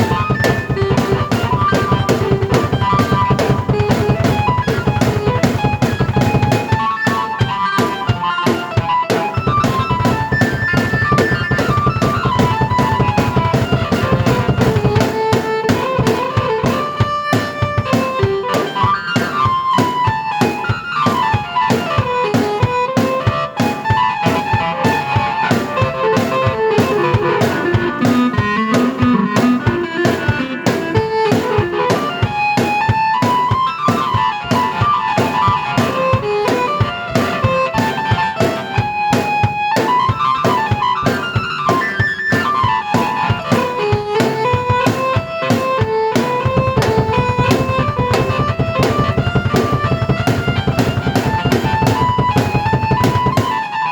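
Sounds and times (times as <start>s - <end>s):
busy drum beat: 0.0s - 53.9s
keyboard melody: 0.0s - 53.9s.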